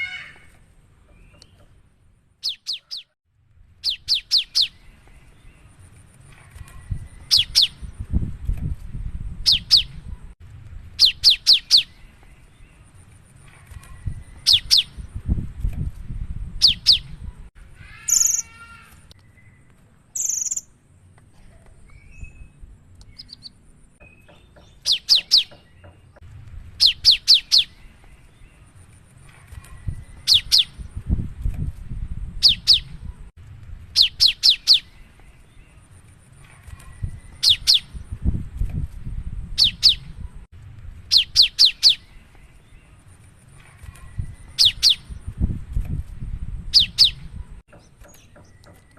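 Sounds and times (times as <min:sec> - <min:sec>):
harsh bird calls: 0:00.0 - 0:01.8, 0:02.4 - 0:03.2, 0:16.6 - 0:20.7.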